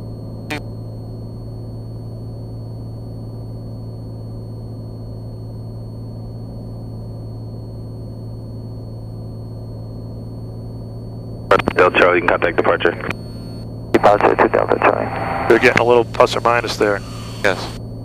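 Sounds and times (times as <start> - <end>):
faint high-pitched whine: 11.5 - 13.2, 14.0 - 17.8
propeller aircraft engine droning: 14.0 - 17.8.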